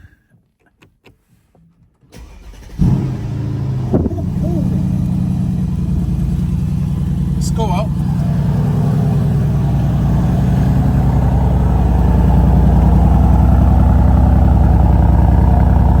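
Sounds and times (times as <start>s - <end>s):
car engine idling: 2.2s - 16.0s.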